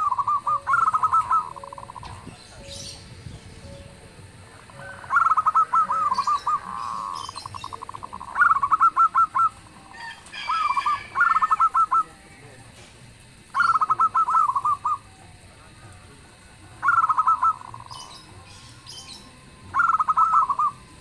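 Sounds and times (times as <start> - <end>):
rapid bird trill: 0.0 - 12.4, 13.3 - 15.5, 16.6 - 21.0
dove cooing: 0.0 - 12.5, 13.2 - 21.0.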